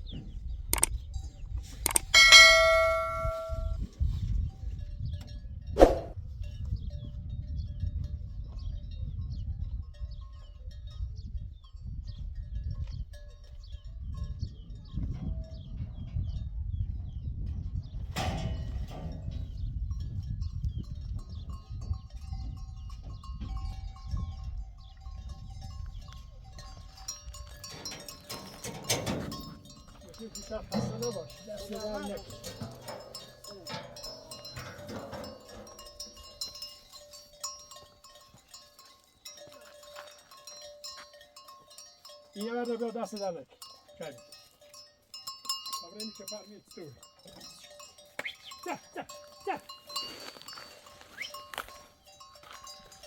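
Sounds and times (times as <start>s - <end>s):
livestock bells clinking: 0.8s - 5.7s, 6.3s - 15.7s, 18.1s - 53.0s
ringing metallic strike: 2.2s - 3.8s.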